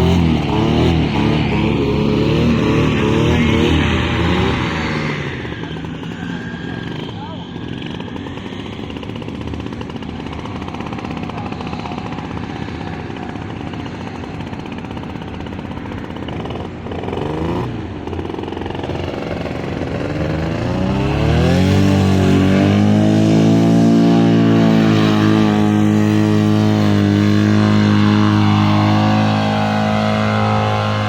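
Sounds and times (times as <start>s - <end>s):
model airplane engine buzzing: 0.0s - 31.0s.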